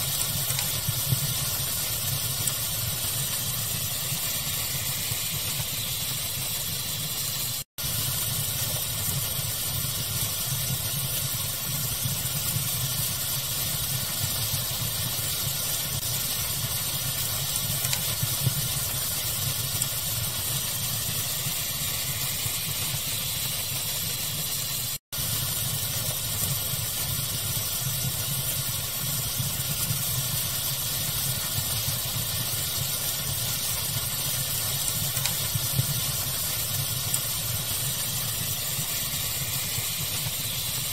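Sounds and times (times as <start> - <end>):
crackling fire with pops: 0.0 - 40.9
steady hiss: 0.0 - 40.9.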